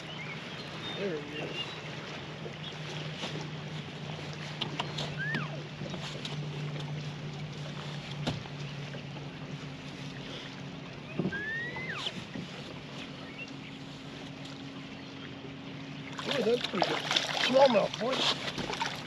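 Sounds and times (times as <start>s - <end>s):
boat motor electric hum: 0.0s - 19.0s
short rising squeak: 11.1s - 12.2s.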